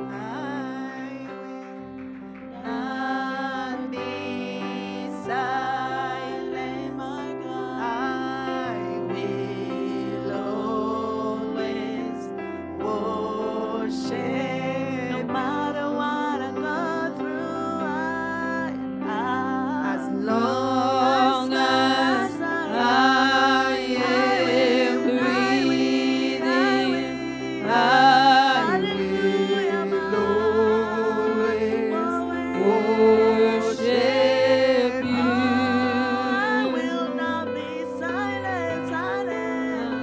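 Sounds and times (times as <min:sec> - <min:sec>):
person singing with vibrato: 0:00.0 - 0:40.0
sustained chords: 0:20.1 - 0:39.2.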